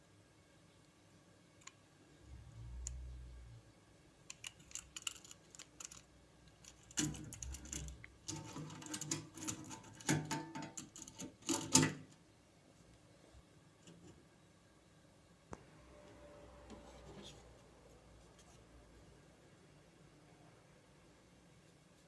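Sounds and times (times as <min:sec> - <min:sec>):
small hard parts clicking and rattling: 0:04.3 - 0:12.0.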